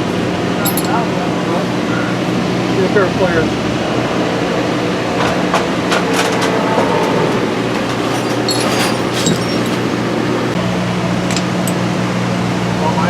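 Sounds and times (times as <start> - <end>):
steady mechanical hum: 0.0 - 13.0
ringing metal taps: 0.6 - 1.0, 11.3 - 11.8
metal tools clinking: 0.6 - 1.1, 8.1 - 9.8, 11.2 - 11.8.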